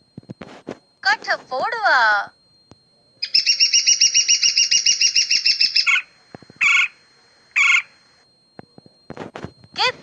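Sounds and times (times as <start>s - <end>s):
woodpecker trilling call: 3.2s - 7.0s, 7.6s - 8.0s.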